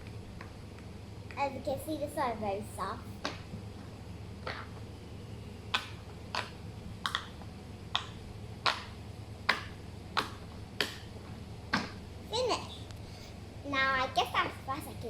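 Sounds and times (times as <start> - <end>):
fidget toy bubbles popping: 4.4 - 4.8, 5.7 - 11.0.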